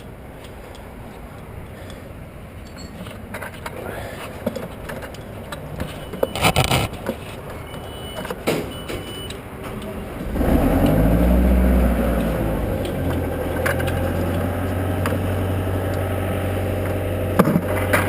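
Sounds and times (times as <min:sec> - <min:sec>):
gear handling clicks and knocks: 0:02.6 - 0:07.6
short beeps: 0:05.9 - 0:06.9, 0:07.6 - 0:09.4
truck engine running: 0:09.4 - 0:18.0.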